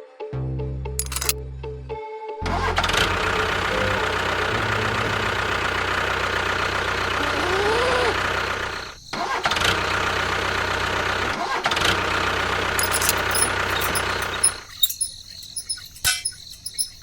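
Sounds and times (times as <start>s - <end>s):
motor humming: 2.8s - 11.3s, 11.9s - 17.0s.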